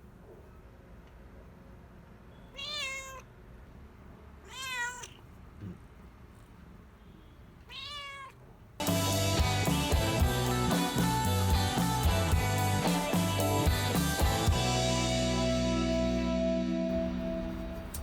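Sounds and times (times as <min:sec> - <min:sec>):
cat meowing: 0:02.5 - 0:03.3, 0:04.4 - 0:05.3, 0:07.6 - 0:08.4
music: 0:08.8 - 0:18.0.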